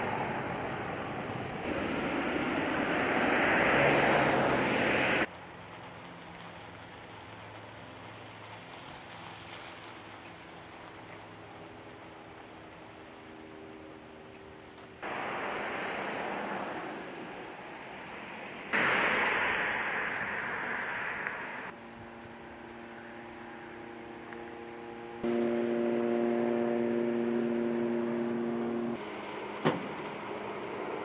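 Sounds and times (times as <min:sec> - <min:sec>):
outdoor rushing noise: 0:00.0 - 0:05.8, 0:15.0 - 0:21.8
mechanical hum: 0:21.8 - 0:31.0.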